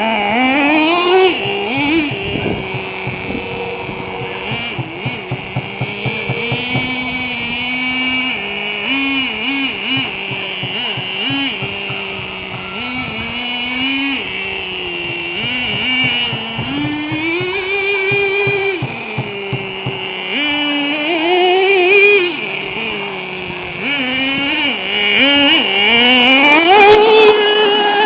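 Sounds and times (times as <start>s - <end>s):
small engine revving: 0.0s - 28.0s.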